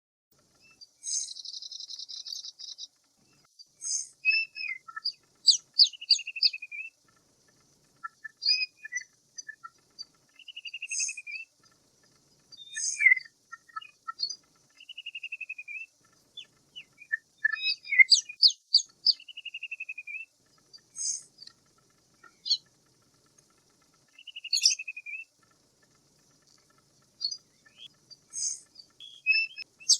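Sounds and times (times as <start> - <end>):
birds chirping and singing: 0.5 - 29.9.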